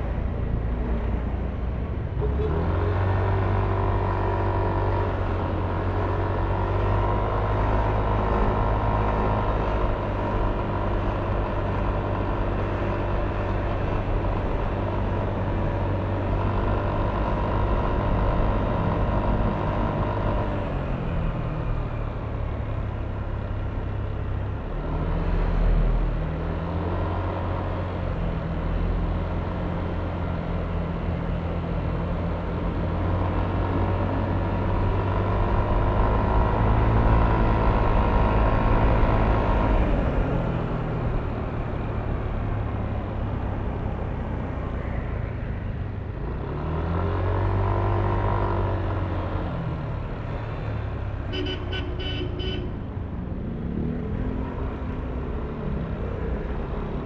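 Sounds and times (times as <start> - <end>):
road and wind noise: 0.0 - 57.0
scooter engine running: 51.3 - 52.7.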